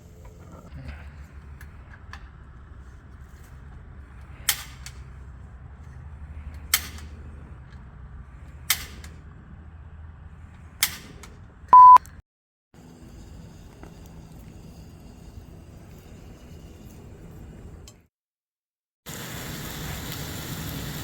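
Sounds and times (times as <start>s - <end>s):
loud steady beep: 11.8s - 12.0s.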